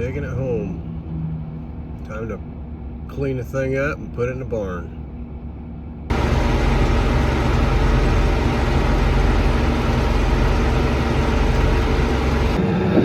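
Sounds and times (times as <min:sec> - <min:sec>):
diesel engine droning: 0:06.1 - 0:13.0.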